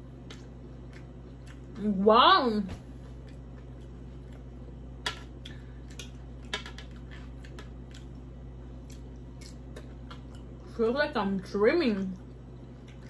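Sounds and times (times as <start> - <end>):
chewing clicks and wet smacks: 0.1 - 1.8, 3.2 - 10.6, 12.1 - 13.0.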